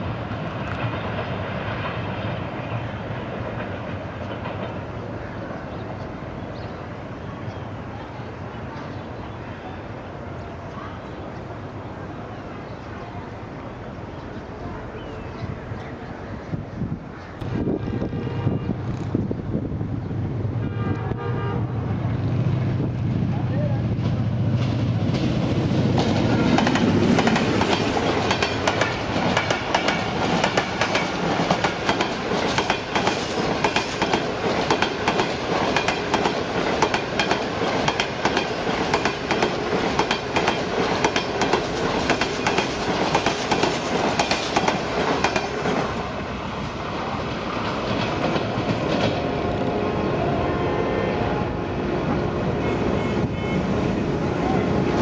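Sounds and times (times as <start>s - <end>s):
train rumble: 0.0s - 8.8s, 10.1s - 55.0s
wheels clacking over rail joints: 0.6s - 5.1s, 24.0s - 46.2s, 47.3s - 49.5s.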